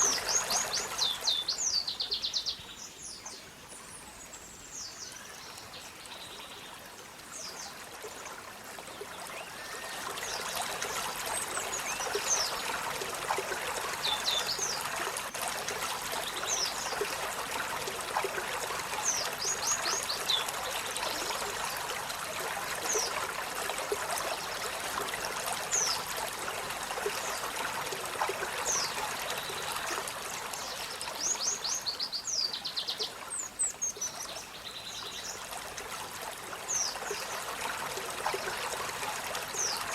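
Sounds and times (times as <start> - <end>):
running water rushing: 0.0 - 3.7, 4.3 - 39.9.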